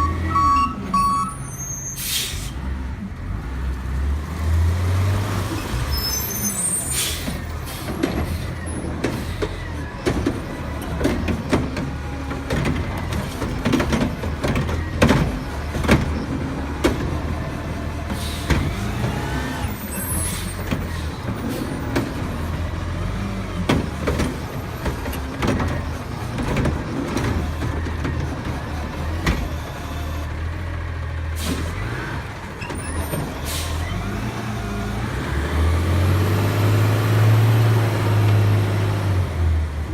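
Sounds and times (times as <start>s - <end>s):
garbage truck engine running: 7.0s - 39.9s
metal clanks and knocks: 7.9s - 17.2s.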